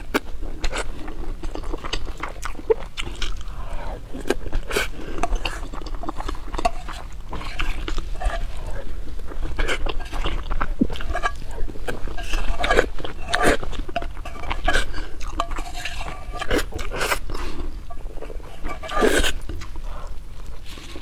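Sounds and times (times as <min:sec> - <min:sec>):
wet chewing and lip smacking: 0:00.0 - 0:21.0.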